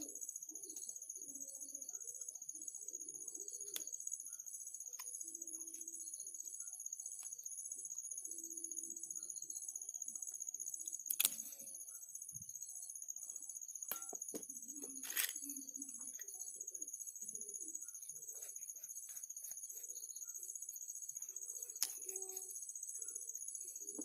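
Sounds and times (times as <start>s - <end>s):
sharp clicks: 11.1s - 11.4s.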